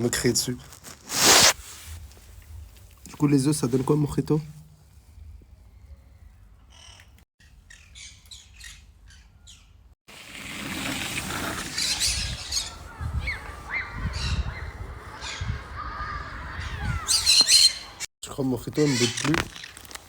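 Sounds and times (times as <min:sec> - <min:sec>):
parrots squawking and chirping: 0:11.7 - 0:18.0, 0:18.8 - 0:19.7.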